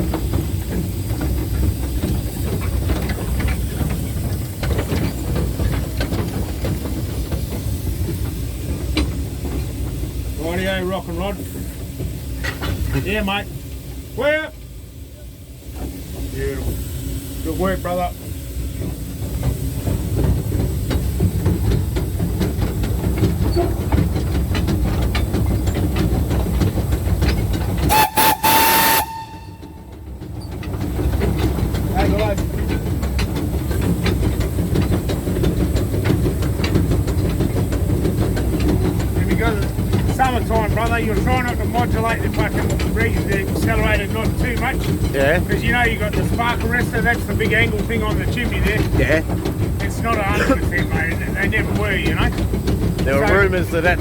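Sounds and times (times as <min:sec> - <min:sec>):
steam locomotive rumble: 0:00.0 - 0:54.0
wheels clicking on rails: 0:00.0 - 0:54.0
steam hiss: 0:27.9 - 0:29.7.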